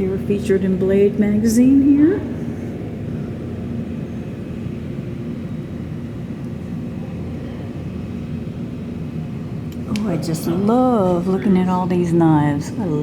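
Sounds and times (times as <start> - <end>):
faint constant drone: 0.0 - 13.0
indoor rumble and hum: 0.0 - 13.0.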